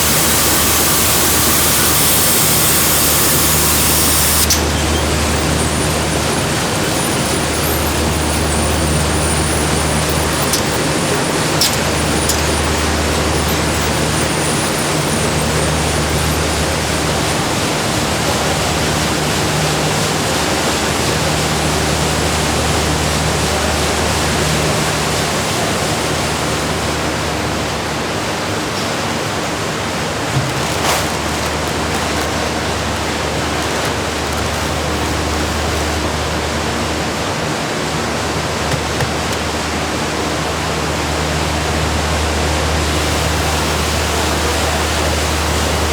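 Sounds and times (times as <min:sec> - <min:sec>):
factory machinery hissing: 0:00.0 - 0:19.5.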